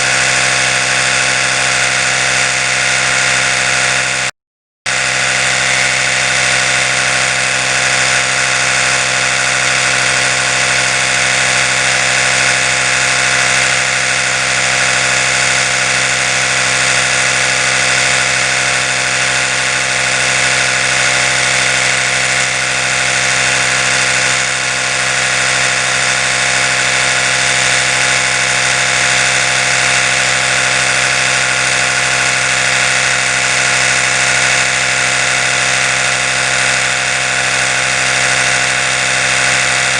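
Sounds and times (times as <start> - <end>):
electric toothbrush buzzing: 0.0 - 4.3, 4.9 - 39.9.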